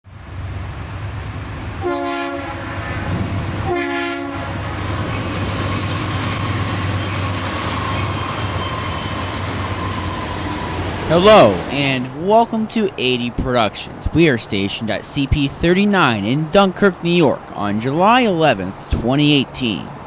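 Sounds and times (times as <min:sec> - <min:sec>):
passing train rumble: 0:00.0 - 0:20.0
locomotive air horn blasts: 0:01.8 - 0:04.8.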